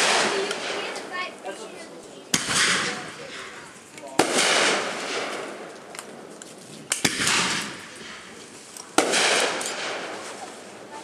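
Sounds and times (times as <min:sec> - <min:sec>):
firework bangs: 0:00.0 - 0:01.5, 0:02.3 - 0:11.0
firework hiss: 0:00.0 - 0:01.6, 0:02.3 - 0:05.7.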